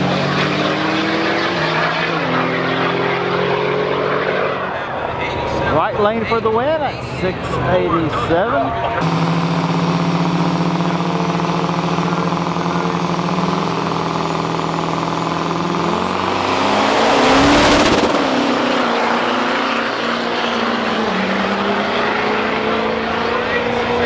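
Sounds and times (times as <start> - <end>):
diesel trucks racing full throttle: 0.0 - 24.0
turbo whistle: 9.0 - 18.6.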